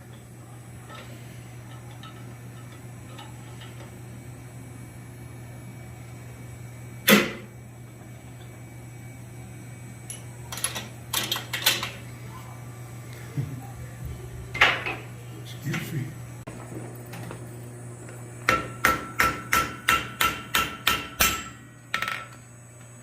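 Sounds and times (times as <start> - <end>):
steady low hum: 0.0 - 23.0
metal clanking on steel: 0.8 - 3.9.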